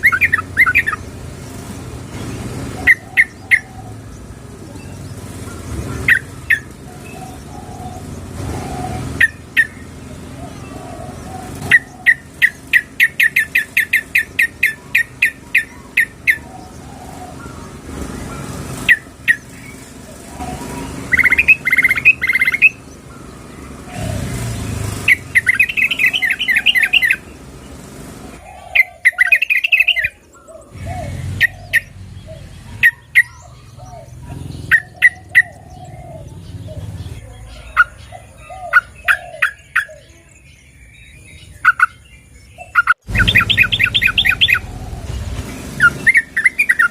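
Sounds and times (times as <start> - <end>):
bird sharp chirps and chattering: 0.0 - 46.9.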